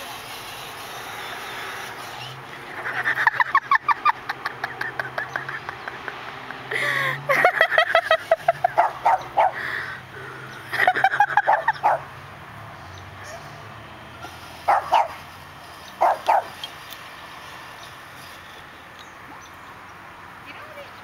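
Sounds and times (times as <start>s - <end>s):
small dog yapping: 14.7s - 15.2s, 16.0s - 16.5s.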